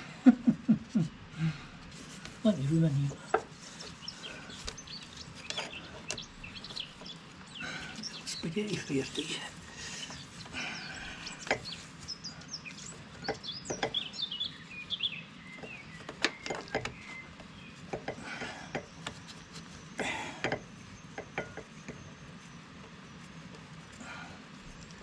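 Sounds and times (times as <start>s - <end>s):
small birds chirping: 0.0s - 25.0s
hoses and metal fittings clicking: 7.8s - 14.2s, 15.5s - 22.1s.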